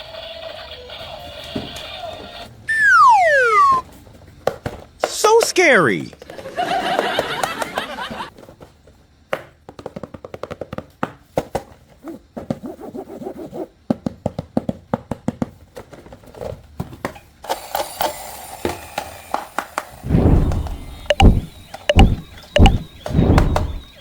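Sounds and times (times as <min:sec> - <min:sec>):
brief pitched sound: 0:02.7 - 0:03.8.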